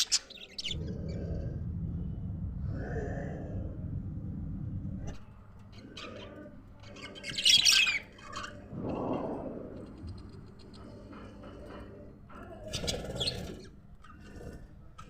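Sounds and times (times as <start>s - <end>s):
budgerigars chirping: 7.0s - 8.5s.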